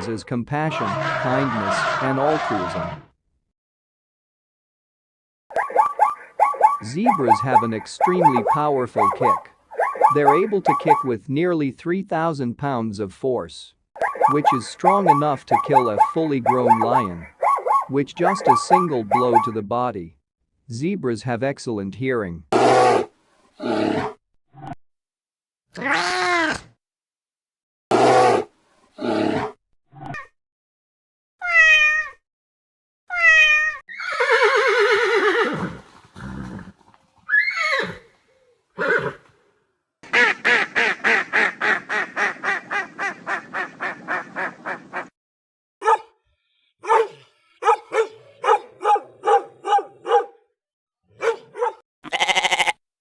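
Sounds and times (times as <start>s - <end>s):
zebras yelping and braying: 0.7s - 2.9s, 5.5s - 11.1s, 14.0s - 19.5s.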